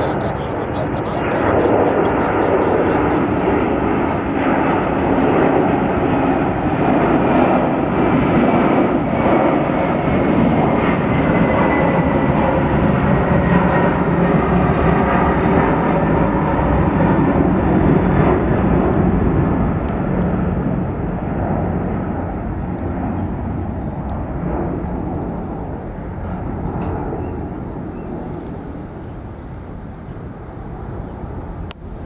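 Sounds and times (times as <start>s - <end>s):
jet plane climbing rumble: 0.0s - 32.0s.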